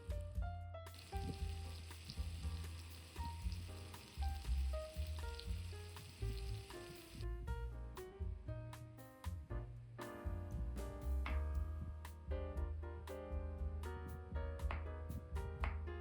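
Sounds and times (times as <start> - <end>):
soft background music: 0.0 - 16.0
food sizzling in hot fat: 0.9 - 7.3.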